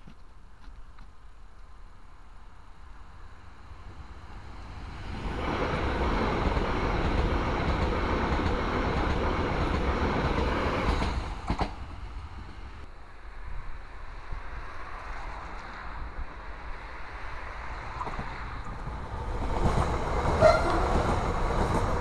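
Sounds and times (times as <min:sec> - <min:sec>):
train passing at speed: 0:02.1 - 0:22.0.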